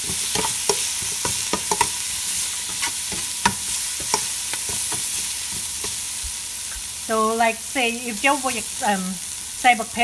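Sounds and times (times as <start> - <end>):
metal utensil scraping pot: 0.0 - 2.0, 2.6 - 6.1
food sizzling in hot oil: 0.0 - 10.0.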